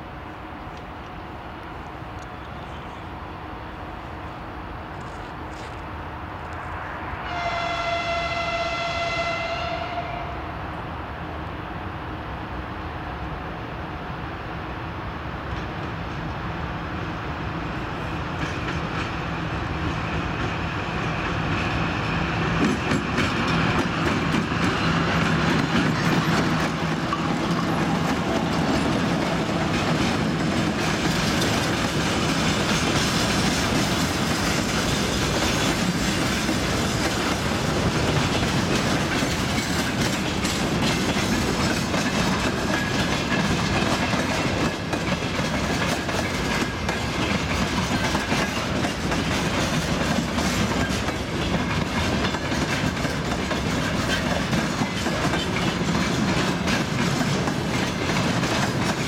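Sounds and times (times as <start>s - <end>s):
diesel locomotive engine hum: 0.0s - 59.0s
train wheels clicking on rail joints: 4.9s - 6.8s, 17.8s - 59.0s.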